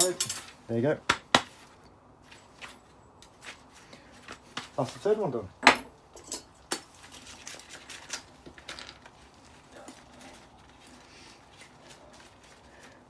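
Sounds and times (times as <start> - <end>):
small metal parts clinking: 0.0 - 0.6, 5.6 - 10.2.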